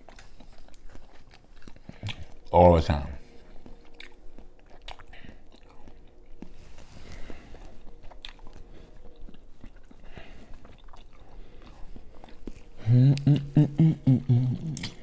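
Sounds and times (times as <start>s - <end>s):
person chewing seafood: 0.0s - 2.5s, 3.2s - 15.0s
sharp mouth clicks: 13.1s - 15.0s
wet mouth smacks: 14.6s - 15.0s.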